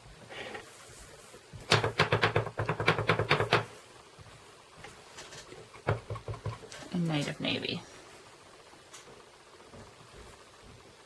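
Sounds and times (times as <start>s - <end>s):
stamp tapping on ink pad: 1.7s - 3.7s.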